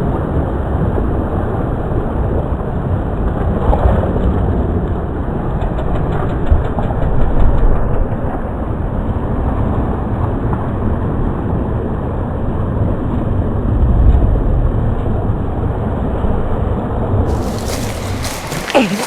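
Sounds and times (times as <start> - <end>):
bicycle tyres on trail: 17.3 - 19.0.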